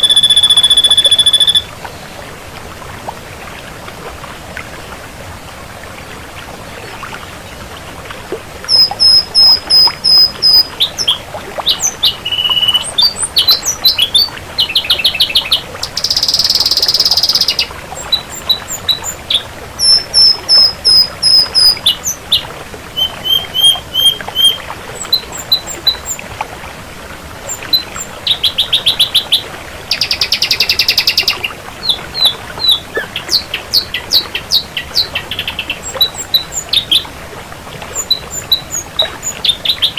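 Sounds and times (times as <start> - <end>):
bird singing varied song: 0.0 - 1.7, 8.7 - 26.2, 27.5 - 37.1, 37.9 - 39.9.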